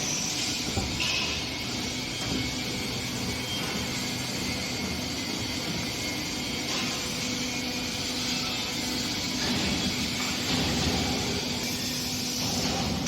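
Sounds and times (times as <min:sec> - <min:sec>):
bending machine humming: 0:00.0 - 0:13.0.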